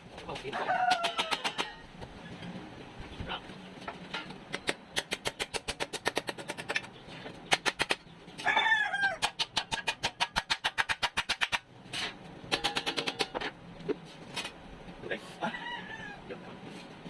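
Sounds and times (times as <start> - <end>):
rooster crowing: 0.5 - 1.9, 8.4 - 9.3, 15.4 - 16.4.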